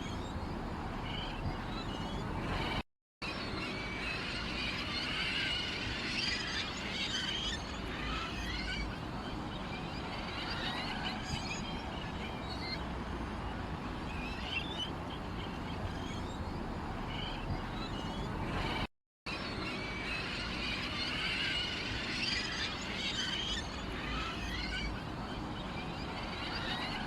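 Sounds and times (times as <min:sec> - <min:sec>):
small birds chirping: 0:00.0 - 0:02.8, 0:04.5 - 0:18.8.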